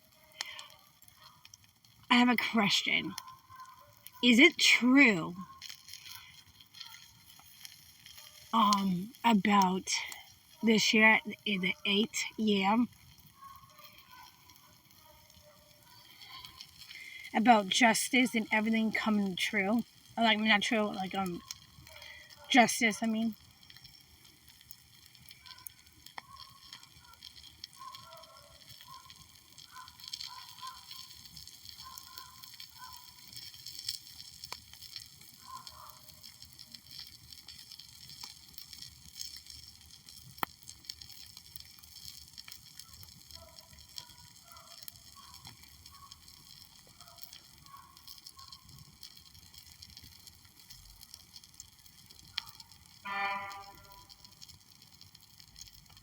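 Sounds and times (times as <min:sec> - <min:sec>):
wood fire crackling and hissing: 0:00.0 - 0:56.0
honking call: 0:53.1 - 0:54.0.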